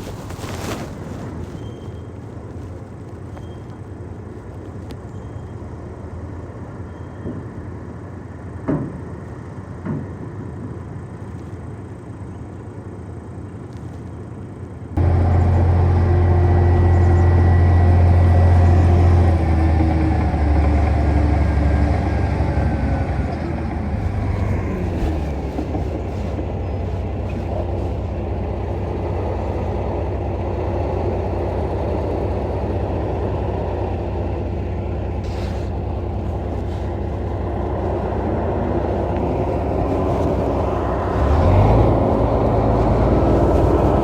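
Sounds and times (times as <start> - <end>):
heavy machinery diesel engine rumble: 0.0 - 44.0
loud low engine drone: 14.9 - 44.0.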